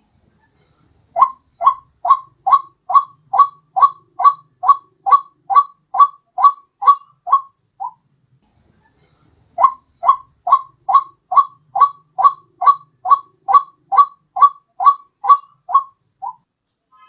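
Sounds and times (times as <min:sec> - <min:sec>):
waterhen calling: 0:01.2 - 0:08.0, 0:09.6 - 0:16.4.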